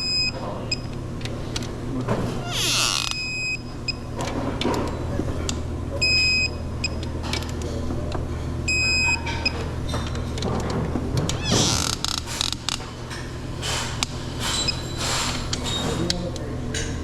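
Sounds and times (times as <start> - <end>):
bolts squeaking and creaking: 2.4 - 3.5, 11.2 - 13.3, 14.4 - 16.2
torque wrench beeping: 2.4 - 4.0.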